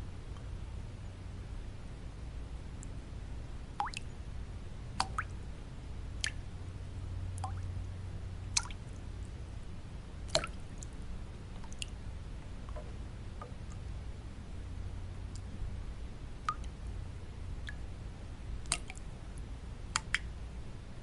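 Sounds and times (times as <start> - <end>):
steady low noise: 0.0 - 21.0
water drops plinking into water: 3.8 - 4.1, 5.0 - 5.4, 6.2 - 6.4, 7.3 - 7.7, 8.5 - 8.8, 10.3 - 10.9, 11.6 - 12.0, 16.4 - 16.8, 17.6 - 17.8, 18.6 - 19.0, 19.9 - 20.3.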